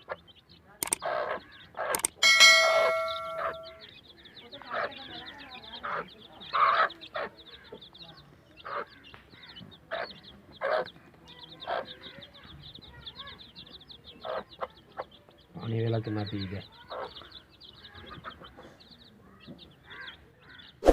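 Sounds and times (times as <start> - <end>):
chicks peeping: 0.0 - 20.8.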